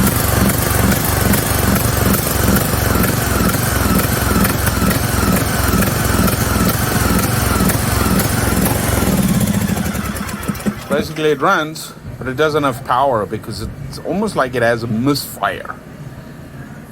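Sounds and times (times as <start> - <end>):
lawn tractor engine misfiring: 0.0 - 12.4.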